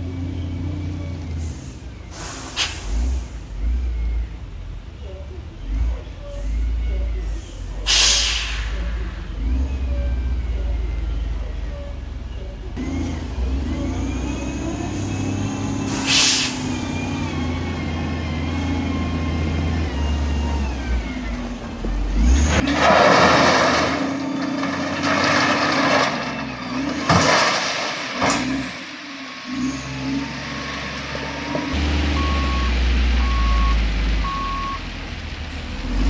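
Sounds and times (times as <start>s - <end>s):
heavy machinery diesel engine: 0.0s - 36.0s
air hiss: 1.6s - 3.4s, 7.5s - 9.2s, 15.9s - 17.0s.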